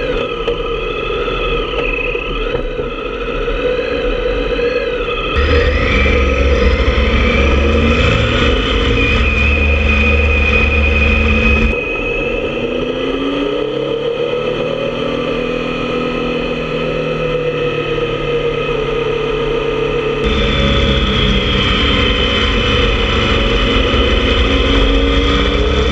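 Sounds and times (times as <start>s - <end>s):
motorcycle engine running: 5.3s - 11.8s, 18.9s - 25.9s.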